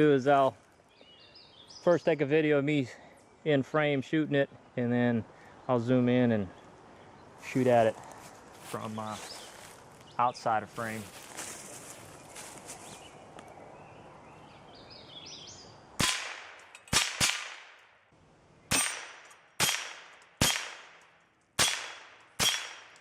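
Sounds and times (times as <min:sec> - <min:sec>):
rifle shots hitting steel target: 0:16.0 - 0:17.8, 0:18.7 - 0:21.0, 0:21.6 - 0:23.0.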